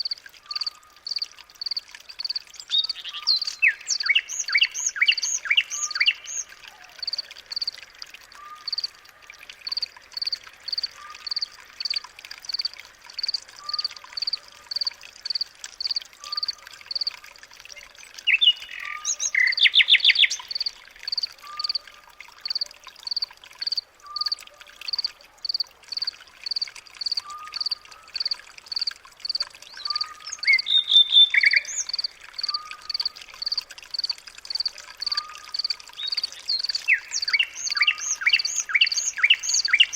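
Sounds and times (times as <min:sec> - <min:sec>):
rapid bird chirping: 0:22.5 - 0:39.9.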